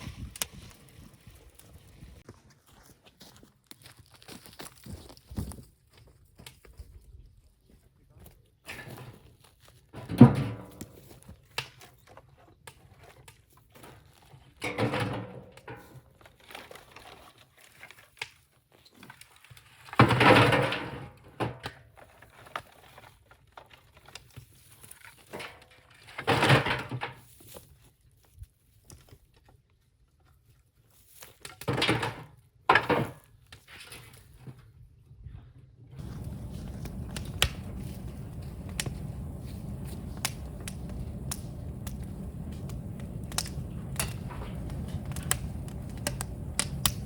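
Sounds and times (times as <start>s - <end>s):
bamboo cracking and rustling: 22.0s - 25.3s, 31.0s - 31.7s, 36.0s - 47.0s.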